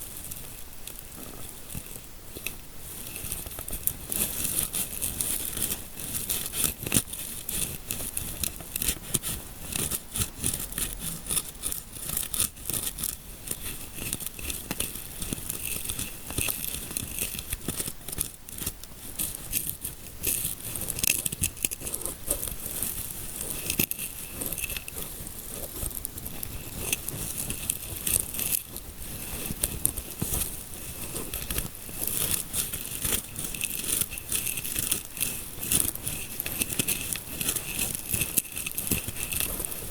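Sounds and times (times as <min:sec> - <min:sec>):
fingers scratching near microphone: 0:01.1 - 0:39.9.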